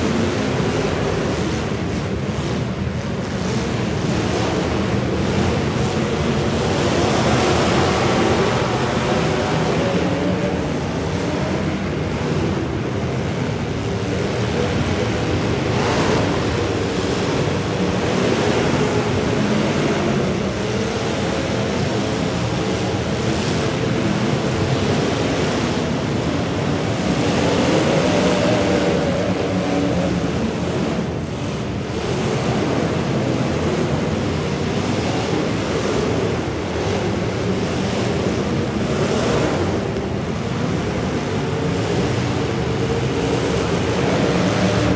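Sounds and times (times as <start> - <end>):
car engines revving: 0.0 - 44.9.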